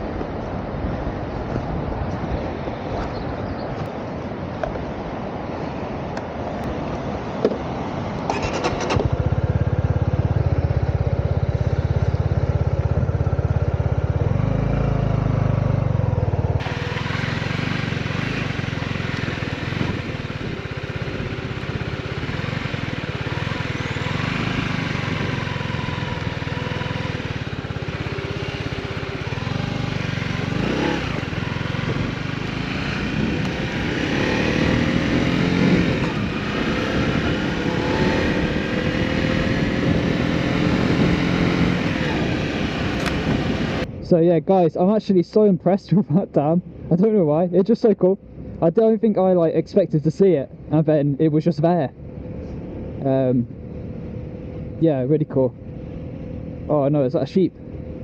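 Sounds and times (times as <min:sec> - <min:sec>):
motorcycle engine running: 0:08.3 - 0:44.0.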